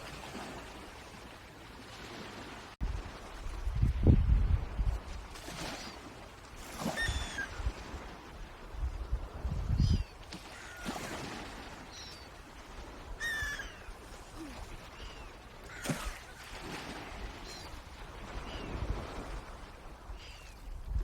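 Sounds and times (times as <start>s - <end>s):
watery windy background: 0.0s - 21.0s
birds calling: 13.2s - 14.0s.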